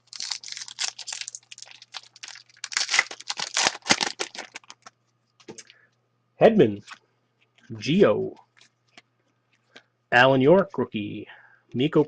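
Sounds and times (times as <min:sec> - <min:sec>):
wrapper tearing and crinkling: 0:00.0 - 0:04.9.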